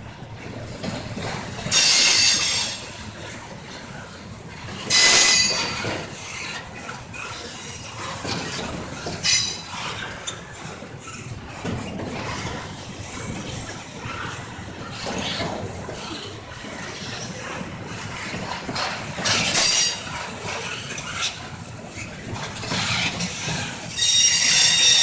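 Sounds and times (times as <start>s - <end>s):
freight train rumbling: 0.0s - 25.0s
high wheel squeal: 1.7s - 3.0s, 4.9s - 11.4s, 19.3s - 21.3s, 22.0s - 25.0s.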